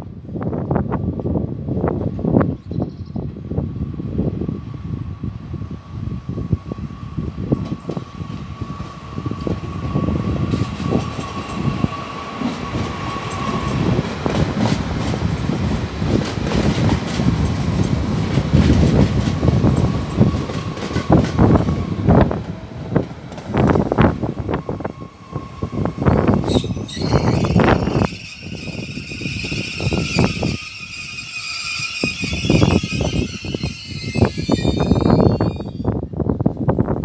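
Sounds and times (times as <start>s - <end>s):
train low rumble: 0.0s - 37.0s
train wheels clattering over rail joints: 12.4s - 21.8s.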